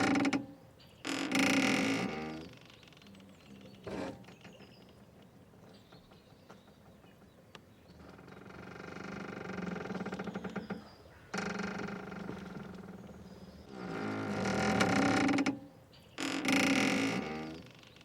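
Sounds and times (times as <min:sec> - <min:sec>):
rope creaking and squeaking: 0:00.0 - 0:04.6, 0:08.0 - 0:15.6, 0:16.2 - 0:18.0.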